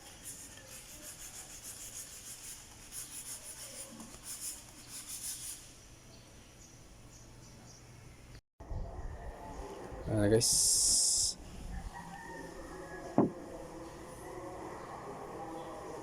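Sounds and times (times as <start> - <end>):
rubbing strokes on a surface: 0.0 - 5.7.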